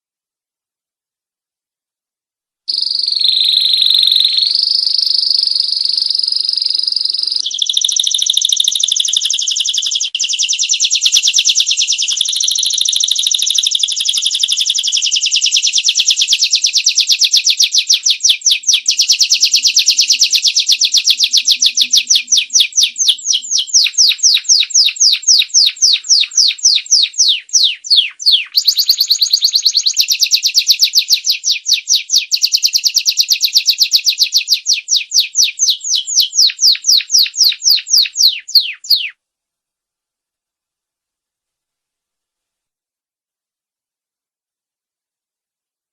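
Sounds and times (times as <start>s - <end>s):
canary singing trill: 2.7s - 39.2s.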